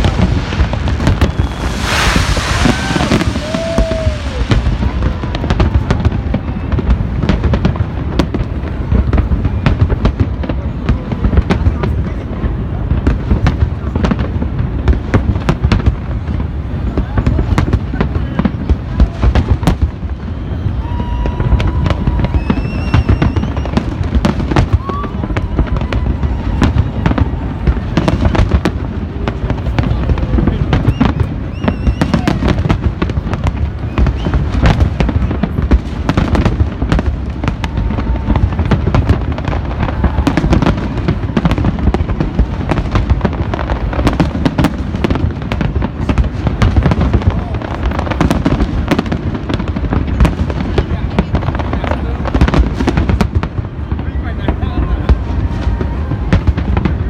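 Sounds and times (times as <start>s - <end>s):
rolling rumble of booms: 0.0s - 20.6s
fireworks bursts and bangs: 0.0s - 57.0s.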